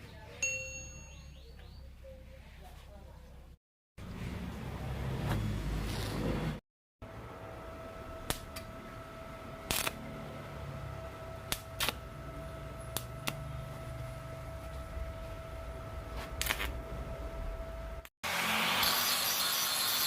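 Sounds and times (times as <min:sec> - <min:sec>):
low hum: 0:07.0 - 0:18.1.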